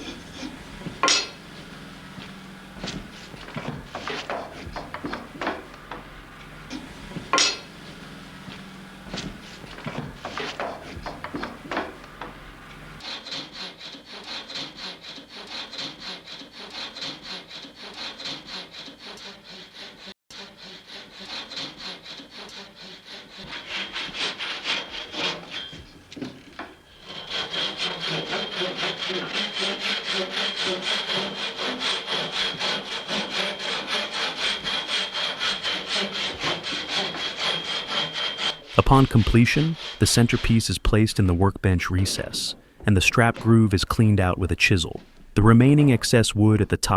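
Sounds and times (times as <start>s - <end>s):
hand saw cutting wood: 0.0s - 41.2s.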